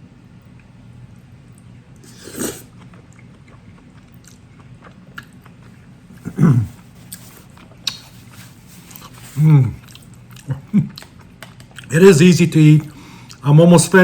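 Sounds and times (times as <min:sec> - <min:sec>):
person chewing noodles: 0:01.5 - 0:11.9, 0:12.8 - 0:13.4
loud mouth noises: 0:06.2 - 0:06.8.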